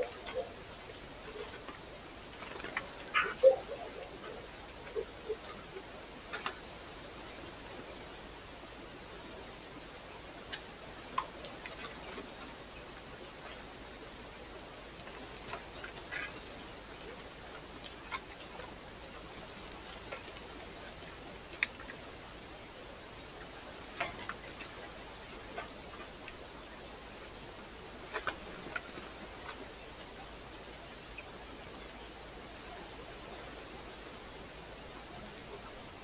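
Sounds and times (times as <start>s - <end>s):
steady low microphone hiss: 0.0s - 36.0s.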